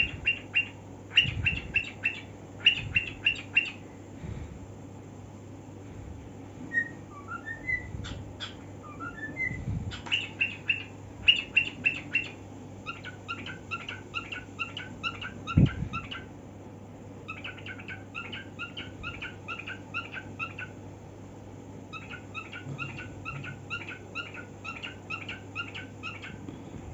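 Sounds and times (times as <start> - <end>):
cockatiel whistling and chirping: 0.0 - 3.8, 6.7 - 16.3, 17.3 - 20.7, 21.9 - 26.4.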